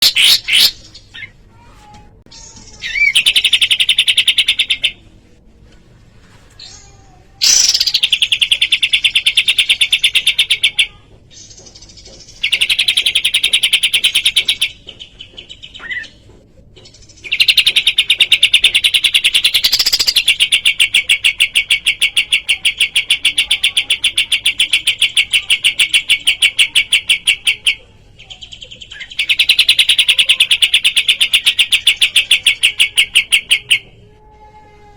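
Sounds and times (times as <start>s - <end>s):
songbird rattling trill: 7.4s - 10.8s, 11.4s - 16.1s, 17.0s - 27.8s, 28.8s - 33.8s.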